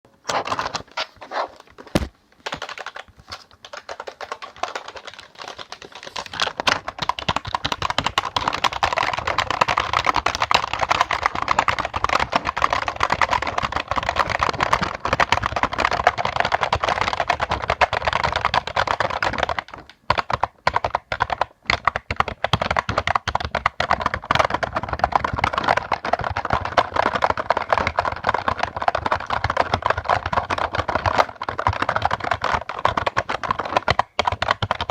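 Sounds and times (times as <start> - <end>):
typing on computer keyboard: 1.9 - 34.9.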